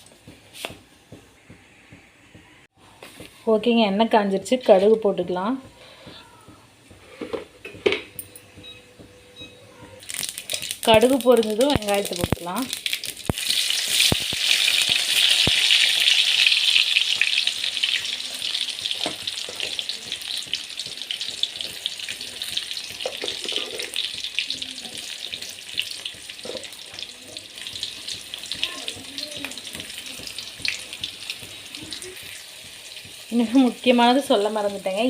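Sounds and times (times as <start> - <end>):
mustard seeds spluttering: 10.0 - 16.2
onions sizzling in hot oil: 10.0 - 35.0.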